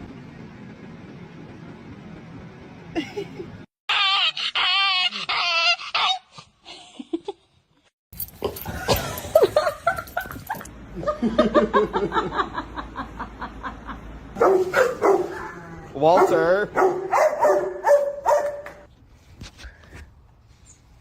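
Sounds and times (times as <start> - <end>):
dog whining: 3.9 - 6.4.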